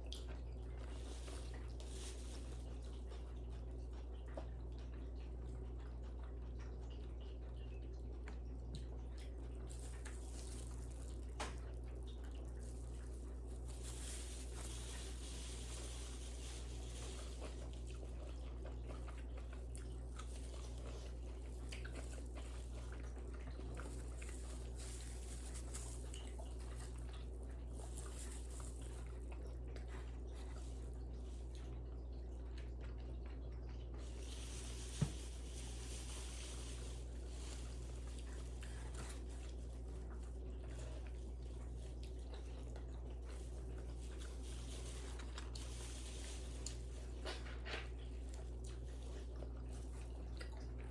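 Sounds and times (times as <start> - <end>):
person chewing and biting: 9.2 - 31.1.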